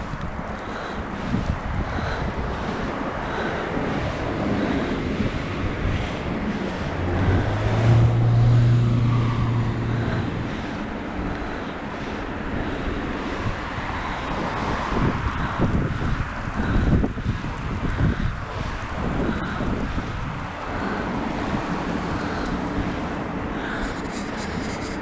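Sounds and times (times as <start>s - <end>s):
road noise: 0.0s - 25.0s
wind buffeting microphone: 0.0s - 25.0s
motor vehicle passing: 3.9s - 11.4s, 19.0s - 25.0s.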